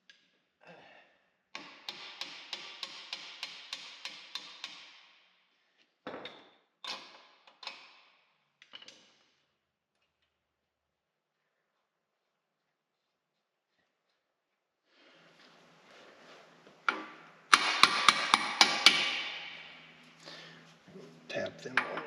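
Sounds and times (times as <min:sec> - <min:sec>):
hammer striking steel: 0:17.5 - 0:20.0.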